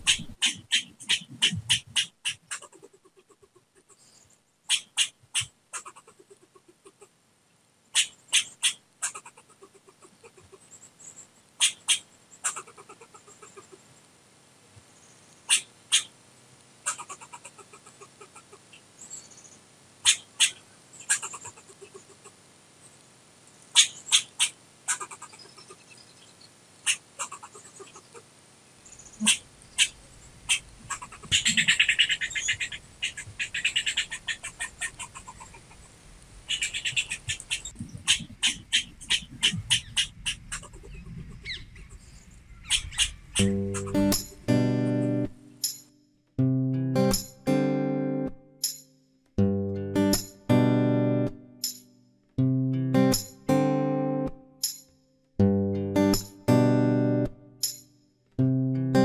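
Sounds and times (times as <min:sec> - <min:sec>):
squirrel barking: 0:00.0 - 0:03.9, 0:04.7 - 0:07.1, 0:07.9 - 0:10.6, 0:11.6 - 0:13.8, 0:15.5 - 0:16.2, 0:16.8 - 0:18.7, 0:20.0 - 0:22.4, 0:23.7 - 0:26.0, 0:26.8 - 0:28.2, 0:29.1 - 0:35.9, 0:36.5 - 0:41.8, 0:42.6 - 0:45.3
squirrel chucking: 0:00.0 - 0:03.9, 0:04.7 - 0:07.1, 0:07.9 - 0:10.7, 0:11.6 - 0:13.8, 0:16.8 - 0:18.6, 0:20.0 - 0:22.3, 0:23.8 - 0:26.0, 0:26.9 - 0:28.2, 0:29.2 - 0:35.9, 0:36.5 - 0:41.9, 0:42.6 - 0:44.4.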